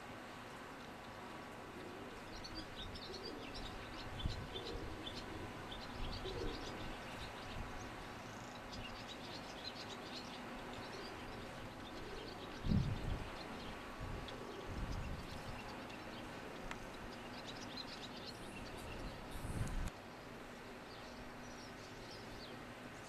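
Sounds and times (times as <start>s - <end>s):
small birds chirping: 0.6s - 23.0s.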